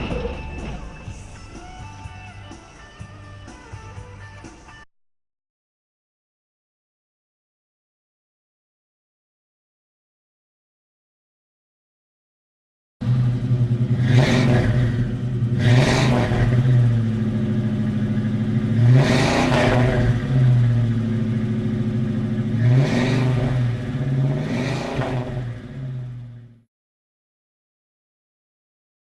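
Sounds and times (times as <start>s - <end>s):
car engine and road drone: 0.0s - 4.9s, 13.0s - 26.7s.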